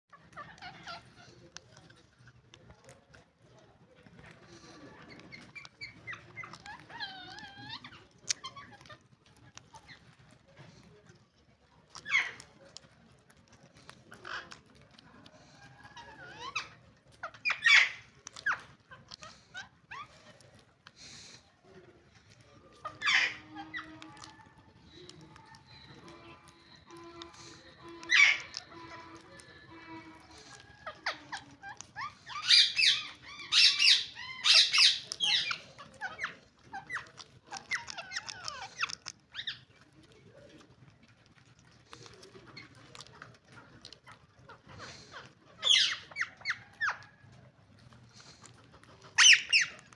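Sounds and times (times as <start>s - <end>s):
parrots squawking and chirping: 0.1s - 3.2s, 4.2s - 10.7s, 11.8s - 40.1s, 41.7s - 49.9s
parrot chattering call: 22.9s - 39.7s, 45.6s - 47.2s, 49.2s - 49.8s.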